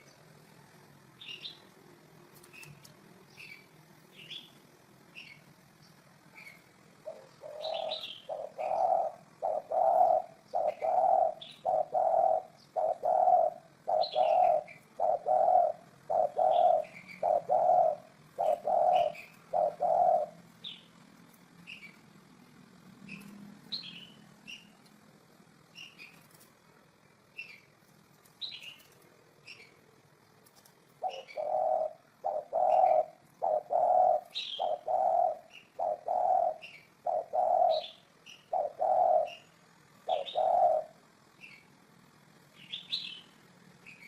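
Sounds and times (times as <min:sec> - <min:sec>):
small birds chirping: 0:00.0 - 0:44.0
dove cooing: 0:06.4 - 0:21.0, 0:31.0 - 0:41.6.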